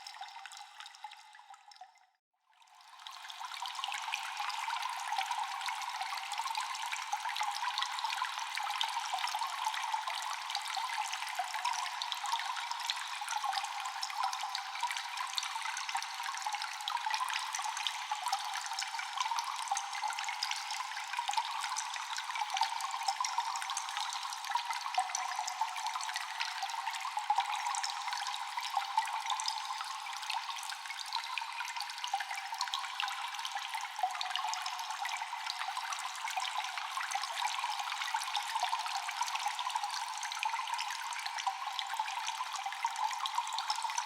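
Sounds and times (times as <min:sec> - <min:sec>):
water dripping: 0:00.0 - 0:02.2
trickling water: 0:00.0 - 0:44.0.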